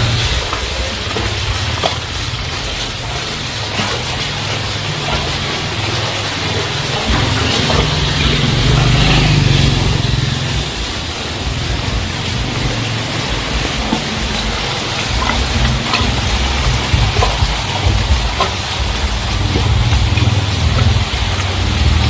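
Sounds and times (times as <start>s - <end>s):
heavy rain falling: 0.0s - 22.0s
vehicle engine rumbling: 0.0s - 22.0s.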